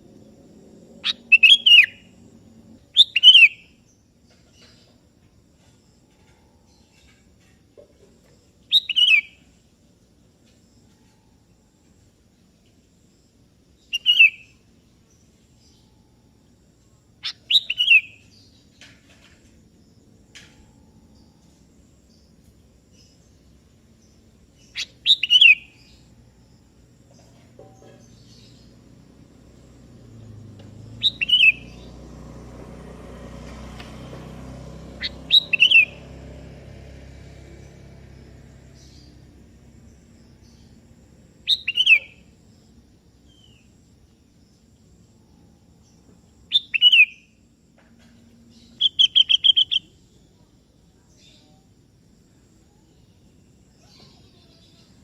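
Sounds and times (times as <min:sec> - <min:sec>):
bulbul calling: 0:01.0 - 0:02.1, 0:02.9 - 0:03.7, 0:08.7 - 0:09.4, 0:13.8 - 0:14.6, 0:17.2 - 0:19.0, 0:24.6 - 0:26.1, 0:31.0 - 0:31.9, 0:35.0 - 0:36.0, 0:41.4 - 0:42.3, 0:46.5 - 0:47.4, 0:48.5 - 0:50.0.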